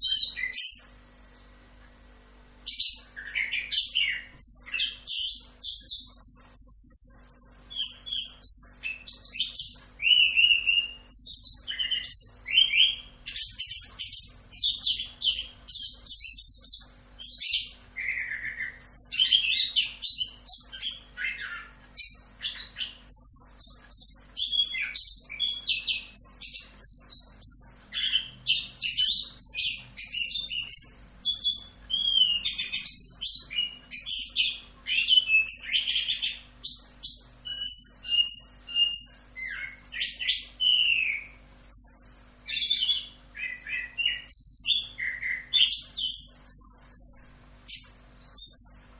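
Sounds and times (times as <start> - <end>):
thrush singing whistled trills: 0.0 - 1.6, 2.6 - 48.8.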